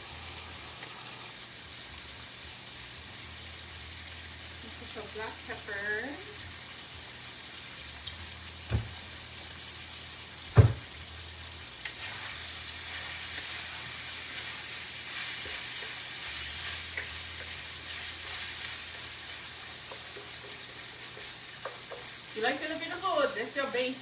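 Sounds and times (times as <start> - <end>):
garlic sizzling in oil: 0.0 - 24.0
sharp knocks: 8.7 - 9.0, 10.6 - 10.9.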